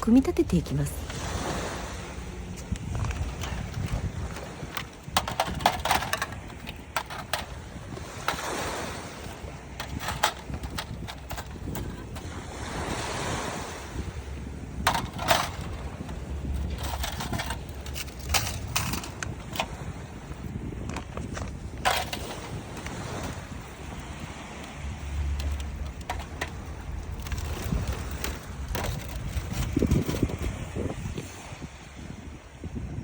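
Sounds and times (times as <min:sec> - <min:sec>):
wind on microphone: 0:00.0 - 0:33.0
waves washing on shore: 0:00.6 - 0:32.6
metal clinks and knocks: 0:02.9 - 0:08.5, 0:09.7 - 0:12.3, 0:14.8 - 0:19.9, 0:20.8 - 0:23.4, 0:24.1 - 0:30.6.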